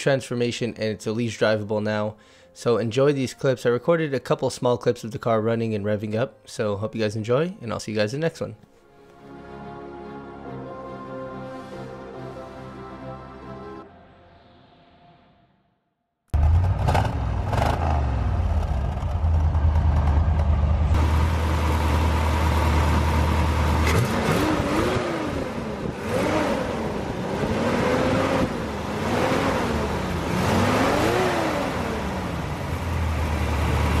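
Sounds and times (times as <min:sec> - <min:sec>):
car engine idling and revving: 0:16.3 - 0:34.0.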